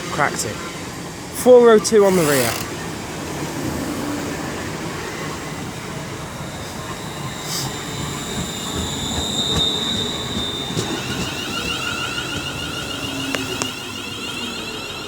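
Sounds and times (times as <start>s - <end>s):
electric train slowing: 0.0s - 15.0s
high steady squeal: 0.3s - 15.0s.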